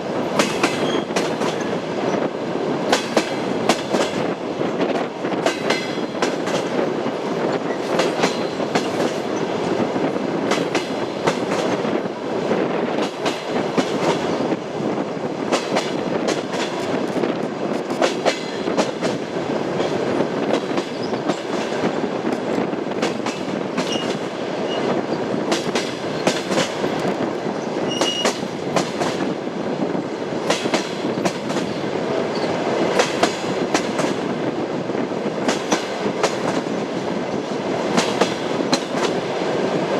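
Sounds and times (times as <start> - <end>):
train wheels clattering over joints: 0.3 - 2.3, 2.9 - 11.8, 15.5 - 29.4, 30.4 - 34.4, 35.4 - 39.2
train wheel squeak: 0.5 - 2.3, 7.4 - 9.5, 20.9 - 21.4, 23.7 - 25.3, 27.5 - 28.5, 32.3 - 32.6.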